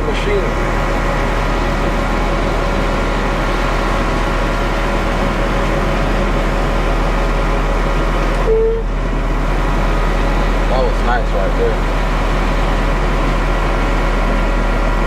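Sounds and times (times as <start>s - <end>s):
diesel truck engine running: 0.0s - 15.0s
short tone: 8.4s - 8.9s.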